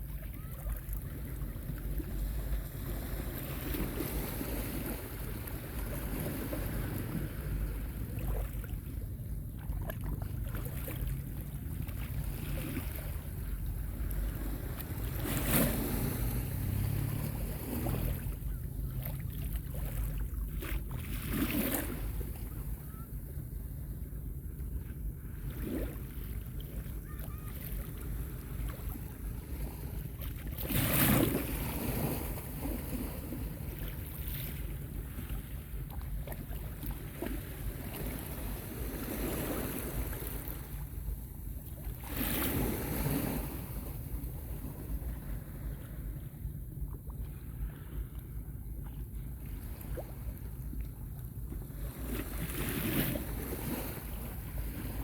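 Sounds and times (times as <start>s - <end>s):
small waves washing onto beach: 0.0s - 55.0s
wind rumbling on microphone: 0.0s - 55.0s
waves washing onto sandy beach: 11.1s - 20.1s.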